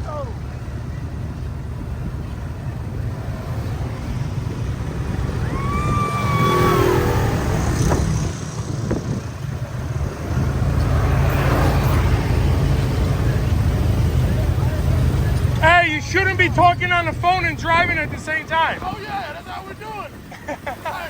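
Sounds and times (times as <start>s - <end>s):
vehicle engine rumbling: 0.0s - 21.0s
high held tone sliding down: 5.3s - 8.0s.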